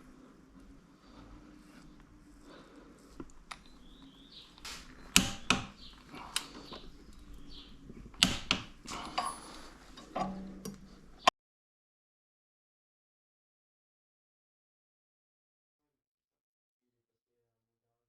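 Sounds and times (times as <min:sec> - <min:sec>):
metal tools clicking and knocking: 0:04.6 - 0:07.4, 0:08.1 - 0:11.1.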